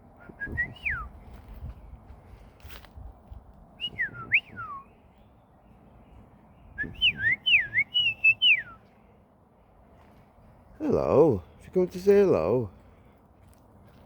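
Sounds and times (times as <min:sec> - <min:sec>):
person whistling: 0:00.2 - 0:01.1, 0:03.8 - 0:04.8, 0:06.8 - 0:08.8.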